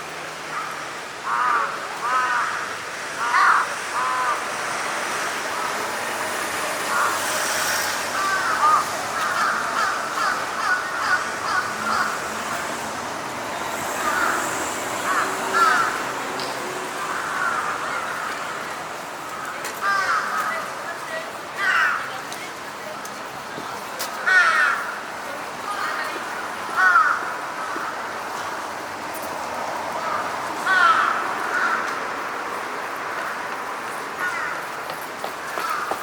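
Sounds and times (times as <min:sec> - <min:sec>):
steady background noise: 0:00.0 - 0:36.0
crows cawing: 0:00.5 - 0:04.5, 0:06.9 - 0:07.3, 0:08.1 - 0:12.4, 0:14.0 - 0:16.1, 0:17.0 - 0:18.4, 0:19.3 - 0:20.7, 0:21.6 - 0:22.2, 0:24.2 - 0:25.1, 0:25.8 - 0:28.1, 0:30.0 - 0:32.0, 0:34.2 - 0:36.0.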